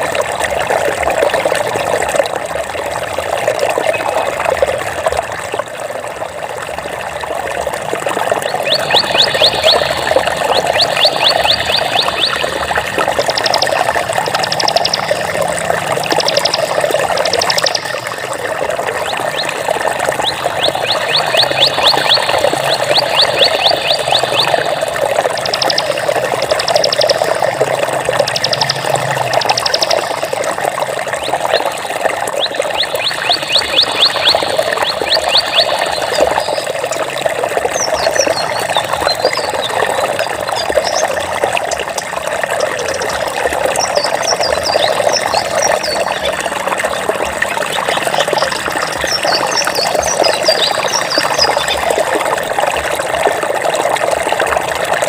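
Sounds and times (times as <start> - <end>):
water rushing: 0.0 - 55.0
high rapid trilling calls: 8.4 - 18.4, 19.0 - 30.6, 31.2 - 37.1, 42.6 - 46.4, 47.6 - 52.0.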